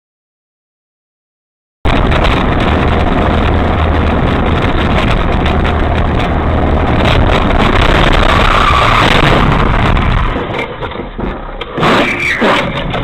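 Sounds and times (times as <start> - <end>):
vehicle engine drone and road noise: 1.9 - 13.0.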